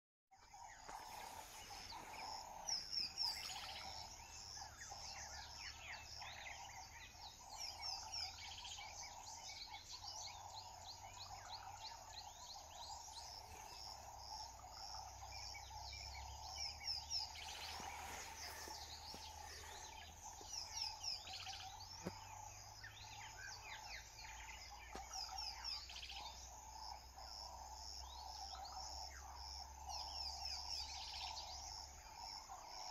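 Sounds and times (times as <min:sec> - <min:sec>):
birds chirping: 0:00.4 - 0:32.9.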